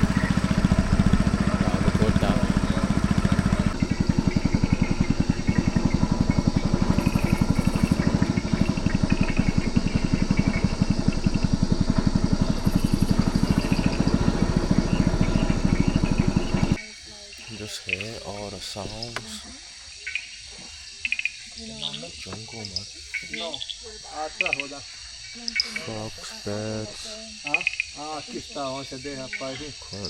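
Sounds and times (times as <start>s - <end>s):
boat motor running: 0.0s - 16.8s.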